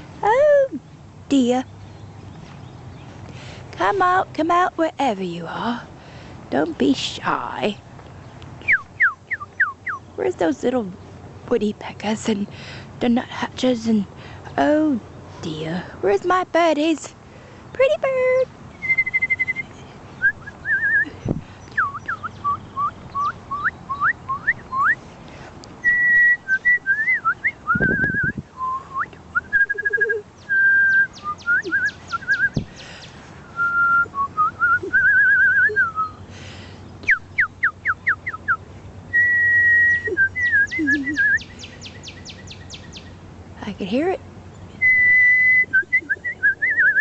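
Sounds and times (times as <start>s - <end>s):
woman whistling bird calls: 8.6s - 10.0s, 18.8s - 25.0s, 25.8s - 32.6s, 33.5s - 36.2s, 37.0s - 41.6s, 44.8s - 47.0s.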